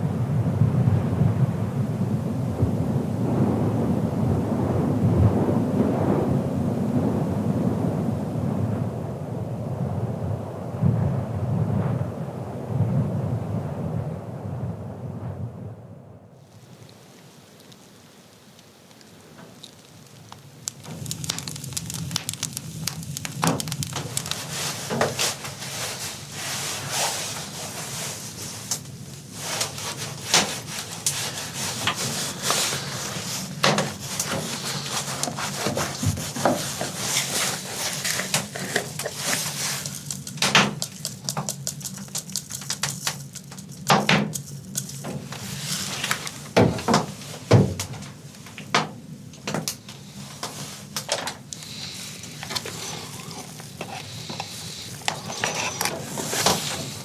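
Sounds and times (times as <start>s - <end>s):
wood knocking and cracking: 19.4s - 25.6s, 33.4s - 45.4s, 46.0s - 49.8s
wood scraping and rubbing: 20.7s - 47.4s, 50.0s - 57.0s.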